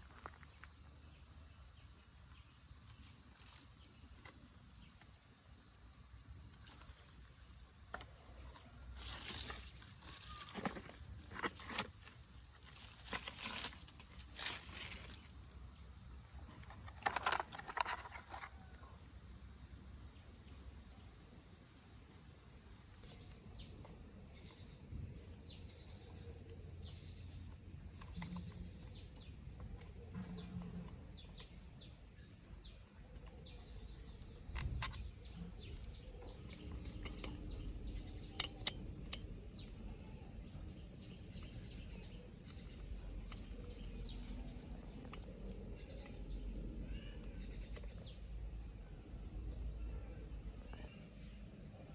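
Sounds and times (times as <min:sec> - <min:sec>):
insects droning: 0:00.0 - 0:51.9.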